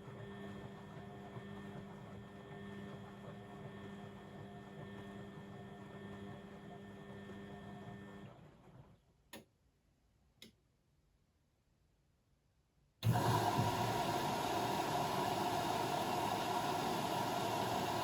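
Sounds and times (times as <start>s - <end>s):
washing machine humming: 13.0s - 18.0s.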